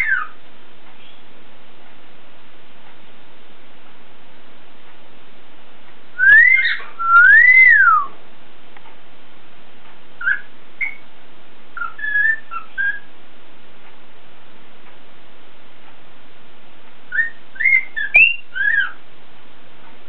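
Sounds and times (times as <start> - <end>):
cockatiel chirps: 0.0 - 0.4, 6.2 - 8.2, 10.2 - 11.0, 11.8 - 13.1, 17.1 - 19.0
cockatiel whistling: 0.0 - 0.4, 6.2 - 8.2, 10.2 - 11.0, 11.8 - 13.1, 17.1 - 19.0.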